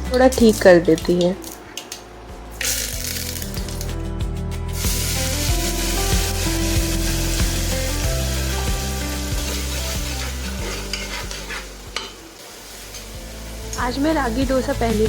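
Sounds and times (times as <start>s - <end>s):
vegetables sizzling in a pan: 2.5s - 3.9s, 4.7s - 15.0s.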